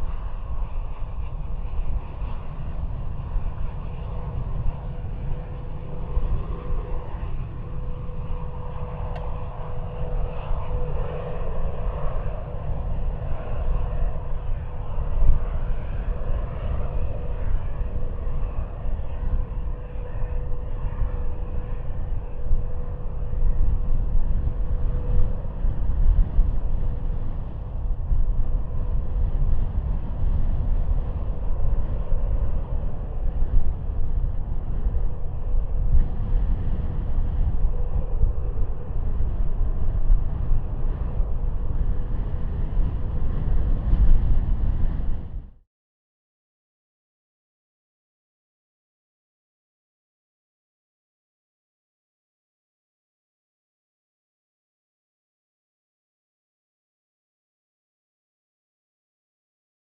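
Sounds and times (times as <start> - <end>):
jet engines whining and rumbling: 0.0 - 45.6.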